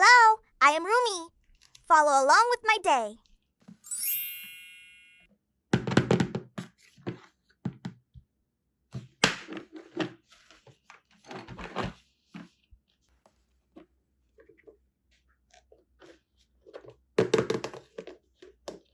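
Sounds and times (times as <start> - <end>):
plastic toys knocking and clicking: 5.7 - 8.1, 17.0 - 18.9.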